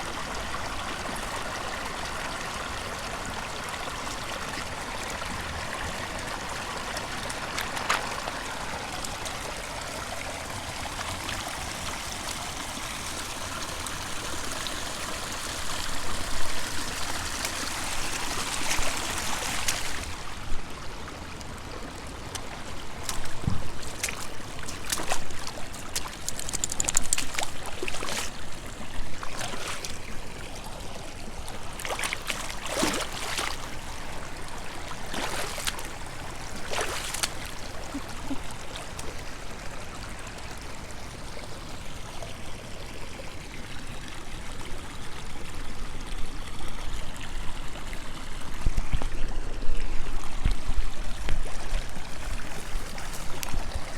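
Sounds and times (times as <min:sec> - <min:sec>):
stream flowing: 0:00.0 - 0:53.9
sharp clicks and knocks: 0:25.9 - 0:27.5.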